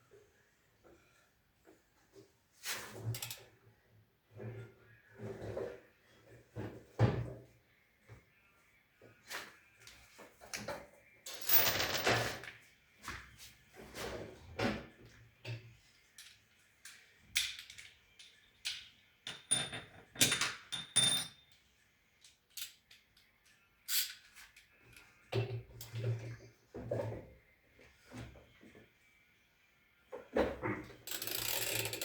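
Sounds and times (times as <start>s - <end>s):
metal parts and tools knocking: 17.4s - 21.5s.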